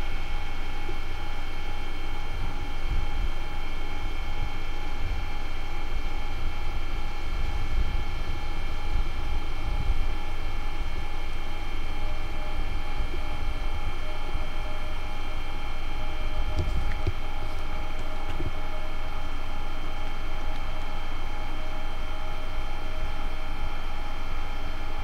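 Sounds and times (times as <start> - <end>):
multi-tone train whine: 0.0 - 25.0
train low rumble: 0.6 - 24.9.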